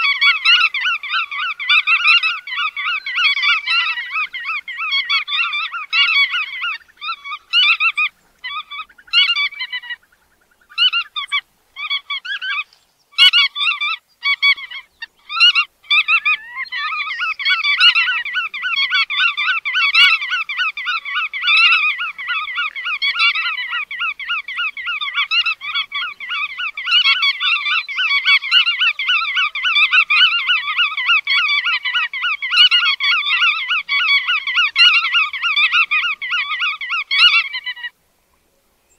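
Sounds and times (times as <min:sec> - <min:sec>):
godwit calls: 0:00.0 - 0:38.0.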